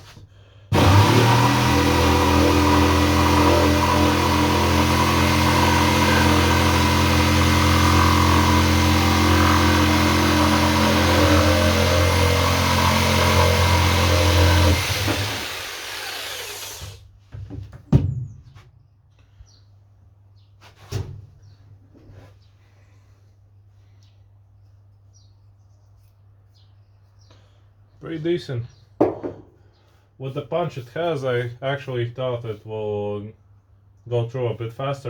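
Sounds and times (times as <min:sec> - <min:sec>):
jigsaw cutting wood: 0:00.7 - 0:17.0
sharp knock: 0:29.0 - 0:29.5.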